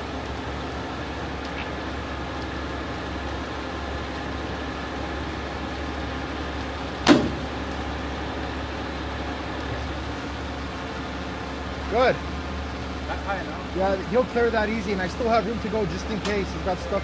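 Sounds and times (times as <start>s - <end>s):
crane engine running under load: 0.0s - 17.0s
sharp knock: 7.1s - 7.5s.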